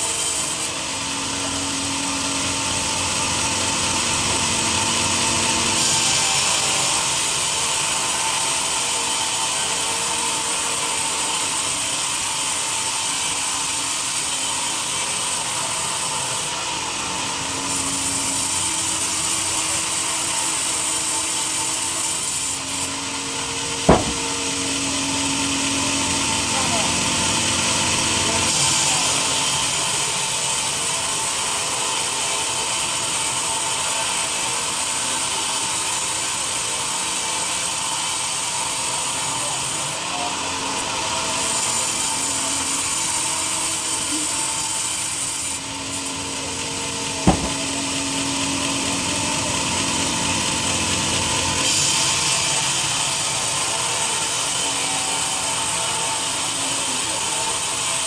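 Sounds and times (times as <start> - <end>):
sharp knock: 23.9 - 24.4, 47.3 - 47.8.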